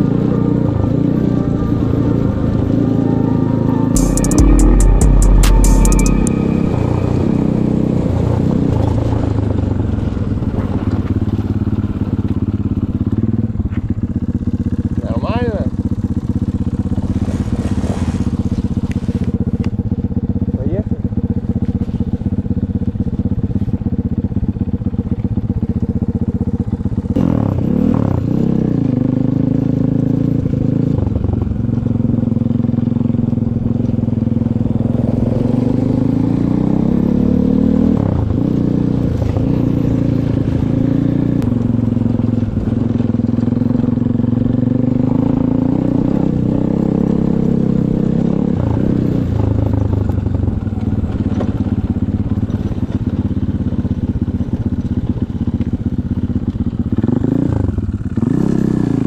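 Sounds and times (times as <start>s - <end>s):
off-road vehicle engine revving: 0.0s - 13.4s, 27.0s - 55.6s, 56.4s - 59.0s.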